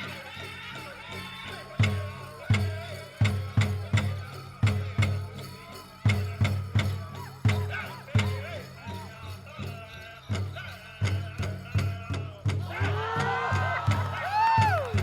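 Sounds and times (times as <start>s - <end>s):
people singing: 0.0s - 15.0s
large drum beating: 10.4s - 15.0s.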